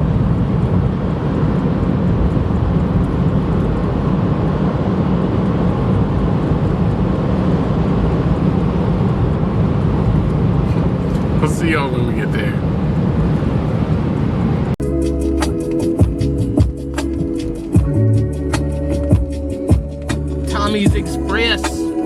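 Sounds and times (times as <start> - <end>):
car cabin road noise: 0.0 - 14.8, 20.4 - 22.0.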